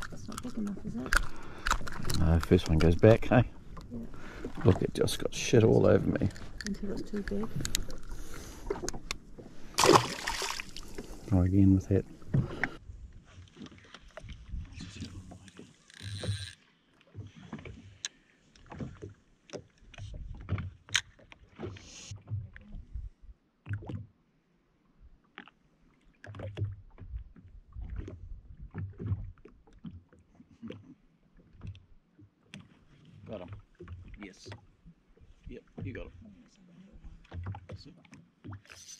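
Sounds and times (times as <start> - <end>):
small waves lapping against hull: 0.0 - 38.9
knocks and clicks from hull: 37.2 - 38.7.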